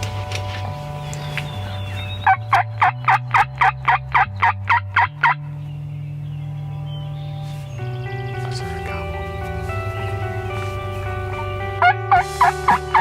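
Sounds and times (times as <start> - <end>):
low steady background tone: 0.0 - 13.0
turkey yelps: 2.2 - 5.4, 11.8 - 13.0.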